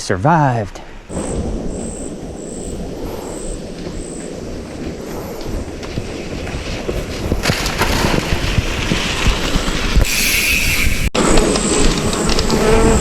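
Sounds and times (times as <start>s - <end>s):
bike tyres rumbling on dirt: 1.1s - 13.0s
wind on microphone: 1.1s - 13.0s
bike rattling and clattering: 4.3s - 13.0s.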